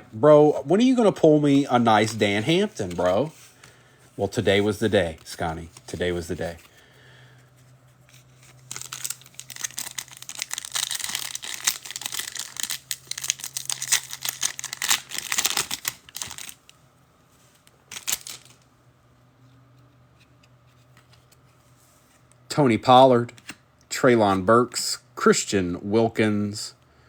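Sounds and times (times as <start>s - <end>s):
foil wrapper crinkling: 8.2s - 16.7s, 17.9s - 18.6s.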